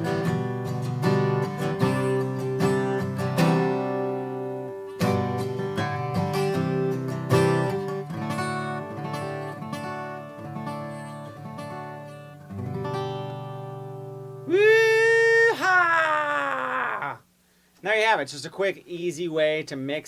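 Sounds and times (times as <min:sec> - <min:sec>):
acoustic guitar strumming: 0:00.0 - 0:14.5
man whooping: 0:14.5 - 0:17.3.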